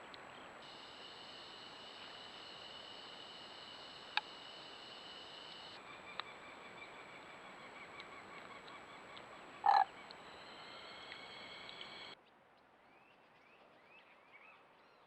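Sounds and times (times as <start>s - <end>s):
chorus of calling frogs or insects: 0.6s - 12.2s.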